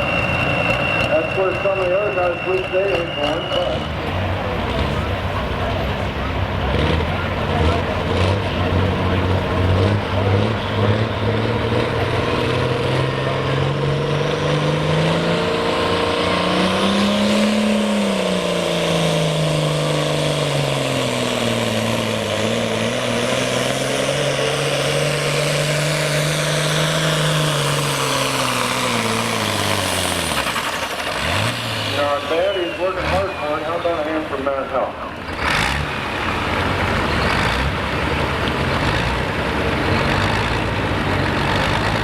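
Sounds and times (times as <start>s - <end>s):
high whine: 0.0s - 4.5s
tractor diesel engine under load: 0.0s - 42.0s.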